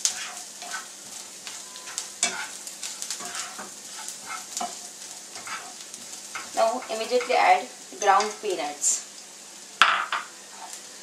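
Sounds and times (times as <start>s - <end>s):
spatula scraping a pan: 0.0s - 8.4s, 10.5s - 10.8s
onions sizzling in a frying pan: 0.0s - 11.0s.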